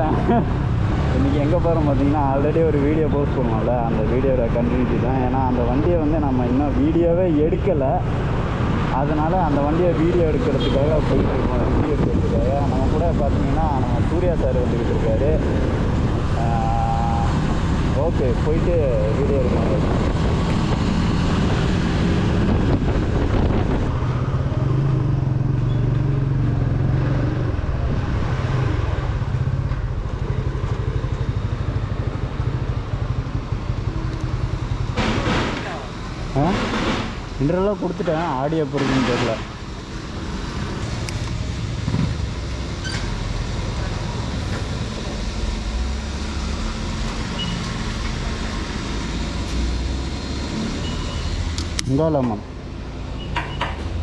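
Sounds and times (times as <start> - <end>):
low vehicle engine rumble: 0.0 - 54.0
road traffic noise: 0.0 - 54.0
wind noise on microphone: 10.9 - 14.0, 19.1 - 24.6
motorcycle engine running: 28.8 - 35.0.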